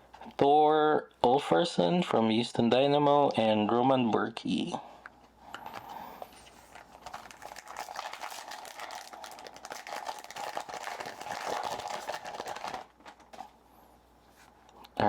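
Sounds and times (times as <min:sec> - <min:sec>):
foil wrapper crinkling and tearing: 0:06.5 - 0:13.4.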